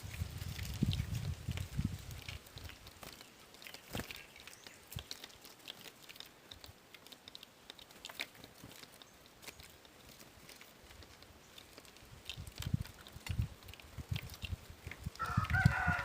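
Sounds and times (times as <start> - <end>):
faint small clicks and ticks: 0.0 - 16.0.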